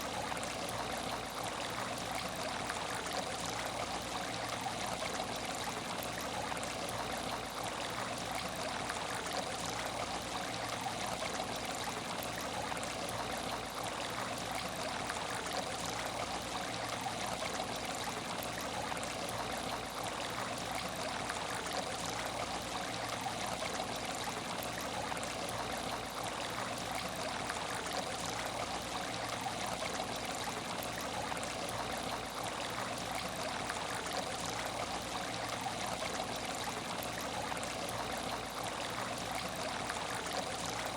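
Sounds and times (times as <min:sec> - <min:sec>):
water running and trickling: 0:00.0 - 0:40.9.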